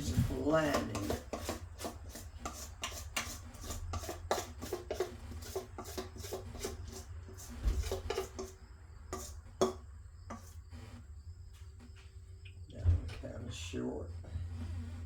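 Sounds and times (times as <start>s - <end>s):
utensil scraping batter in bowl: 0.0s - 11.1s, 14.2s - 15.0s
dull thump: 7.6s - 7.9s.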